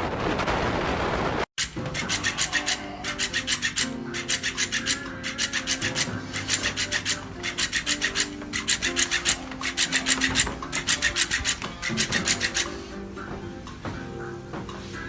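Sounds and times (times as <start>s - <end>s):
fast rasping strokes: 1.6s - 13.1s
held musical notes: 1.7s - 15.0s.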